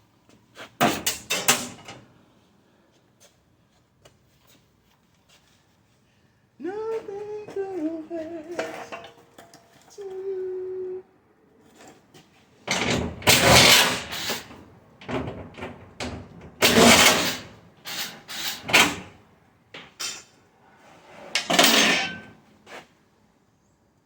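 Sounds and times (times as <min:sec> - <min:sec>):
metal parts clattering and scraping: 0:08.5 - 0:09.8, 0:12.7 - 0:14.6, 0:16.6 - 0:19.0, 0:21.3 - 0:22.3.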